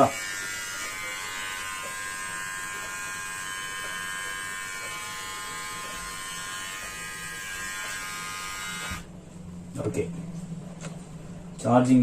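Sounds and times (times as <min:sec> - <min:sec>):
beard trimmer buzzing: 0:00.0 - 0:09.1.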